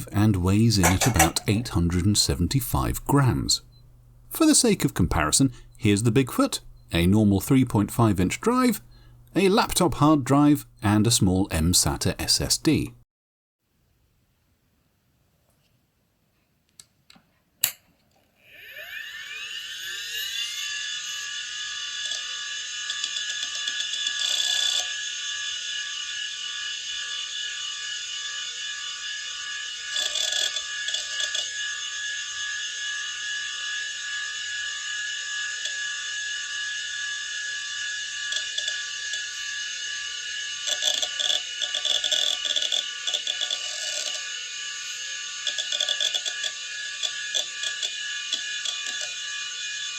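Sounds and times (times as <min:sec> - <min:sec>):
hard drive head-seek clicking: 0:00.0 - 0:13.0
spindle motor whine: 0:00.0 - 0:13.0, 0:18.4 - 0:49.9
hard drive clicks: 0:00.6 - 0:06.9.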